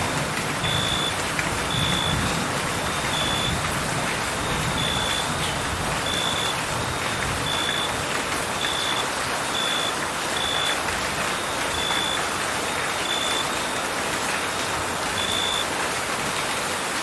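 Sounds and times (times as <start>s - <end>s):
steady rain falling: 0.0s - 17.0s
cricket chirping: 6.1s - 6.6s.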